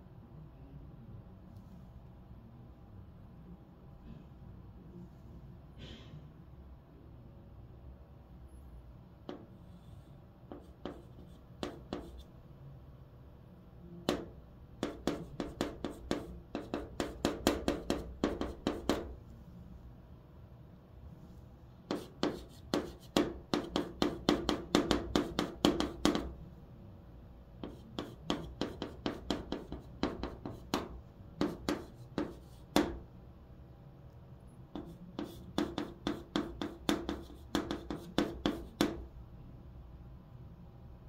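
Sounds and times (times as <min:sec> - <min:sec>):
chalk tapping and scratching: 0:09.3 - 0:12.3, 0:14.0 - 0:19.2, 0:21.8 - 0:26.4, 0:27.6 - 0:33.0, 0:34.7 - 0:39.1.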